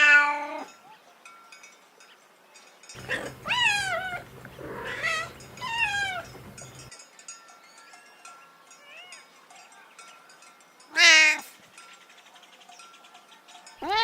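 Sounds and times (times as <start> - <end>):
cat meowing: 0.0 - 0.7, 3.0 - 6.6.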